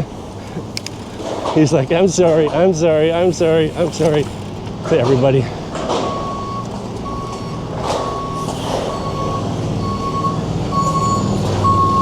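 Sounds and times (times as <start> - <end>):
engine humming: 0.0 - 12.0
reversing alarm beeping: 6.0 - 12.0.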